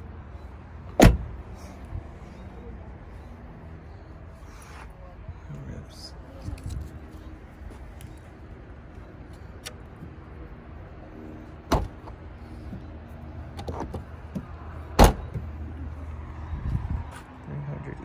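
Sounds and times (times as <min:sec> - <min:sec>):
steady low rumble: 0:00.0 - 0:18.0
car door slamming: 0:00.9 - 0:01.4, 0:11.6 - 0:12.8, 0:13.6 - 0:15.6.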